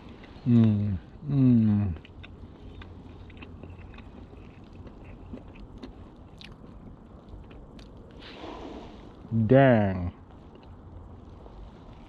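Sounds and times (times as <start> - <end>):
person chewing crunchy food: 0.0 - 8.8, 10.5 - 10.8
low background rumble: 0.0 - 12.0.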